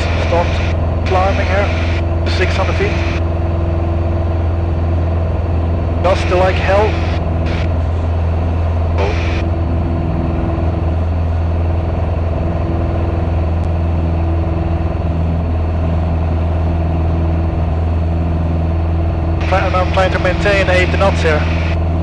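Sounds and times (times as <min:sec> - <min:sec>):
propeller plane engine drone: 0:00.0 - 0:22.0.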